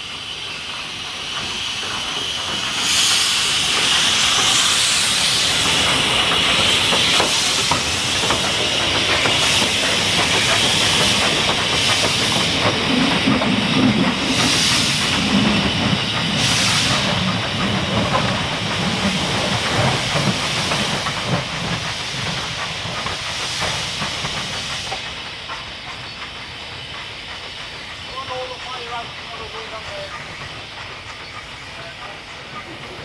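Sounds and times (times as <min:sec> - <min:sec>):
steam locomotive hissing steam: 0:00.0 - 0:33.0.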